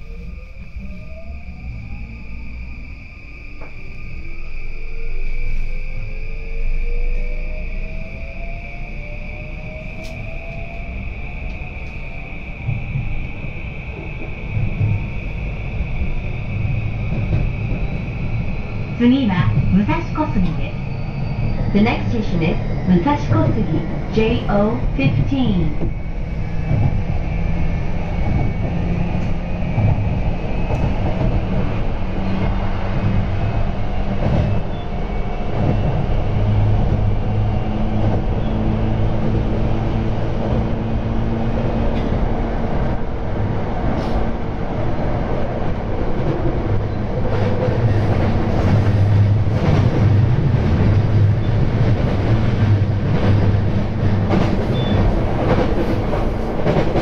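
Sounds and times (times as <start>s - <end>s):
train rumble and hum: 0.0s - 57.0s.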